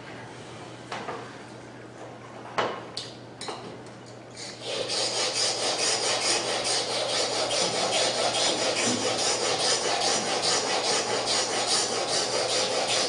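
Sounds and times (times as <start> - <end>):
chisel rasping on sharpening stone: 4.4 - 13.0.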